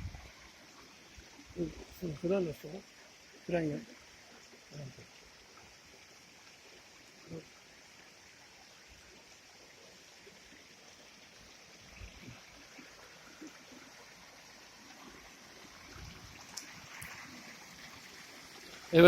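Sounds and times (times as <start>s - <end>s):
stream rushing: 9.8s - 19.0s.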